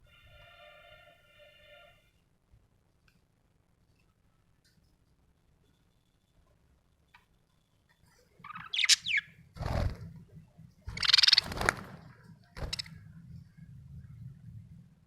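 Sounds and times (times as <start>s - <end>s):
budgerigar chirping and chattering: 8.4s - 9.3s, 10.9s - 11.5s.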